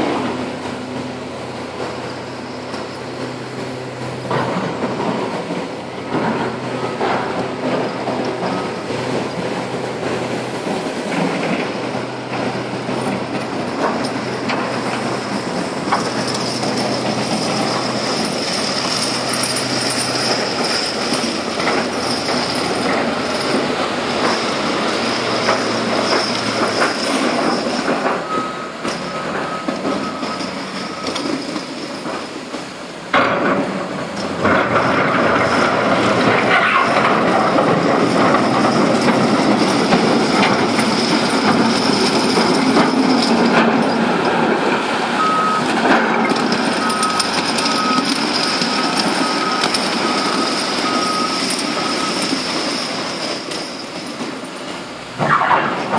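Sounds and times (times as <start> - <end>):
heavy machinery rattling: 0.0 - 55.9
high squeal: 13.7 - 32.4, 46.3 - 54.0.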